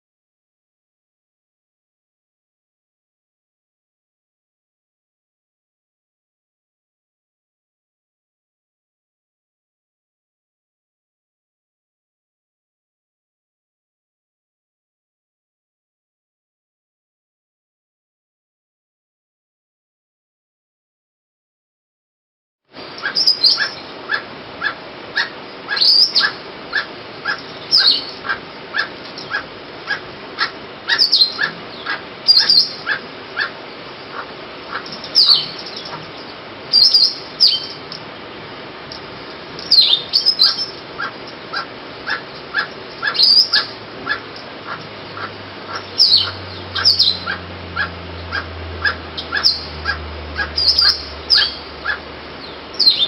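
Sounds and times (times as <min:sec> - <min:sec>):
barbet calling repeated notes: 0:22.8 - 0:38.0, 0:39.6 - 0:52.1.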